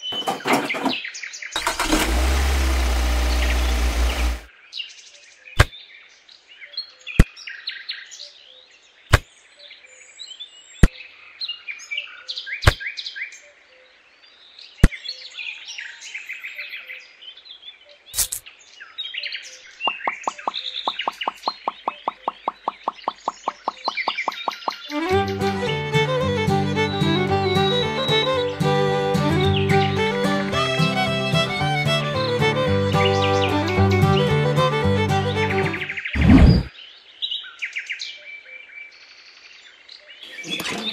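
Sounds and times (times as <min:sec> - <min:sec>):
birds chirping: 0:00.0 - 0:04.5, 0:19.4 - 0:37.2
fast even ticking: 0:20.1 - 0:24.5.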